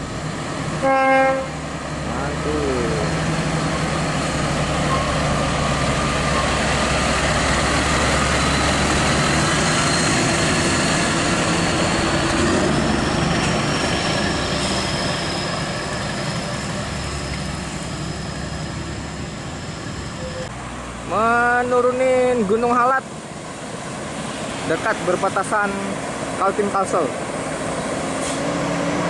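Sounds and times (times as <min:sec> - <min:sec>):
heavy truck engine running: 0:02.1 - 0:14.8.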